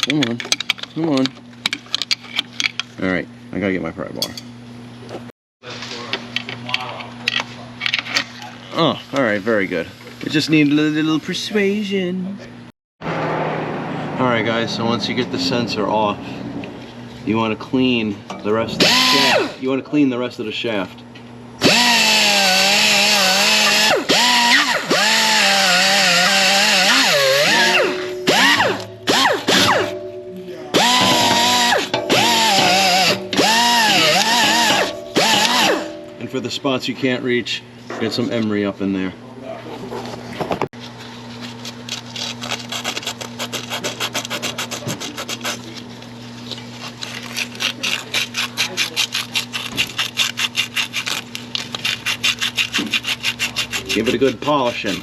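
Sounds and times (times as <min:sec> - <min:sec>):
power tool wire wheel grinding: 0:18.8 - 0:19.7, 0:21.6 - 0:30.0, 0:30.7 - 0:36.2
emery cloth scraping metal shaft: 0:30.7 - 0:36.2.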